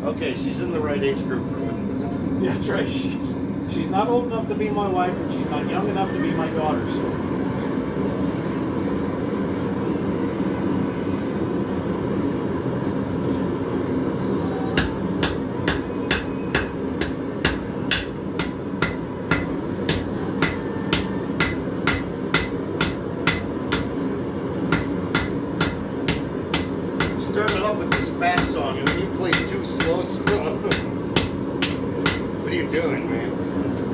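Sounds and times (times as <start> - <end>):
low background rumble: 7.1 - 33.6
hammer striking steel on anvil: 14.8 - 24.0, 24.7 - 32.3.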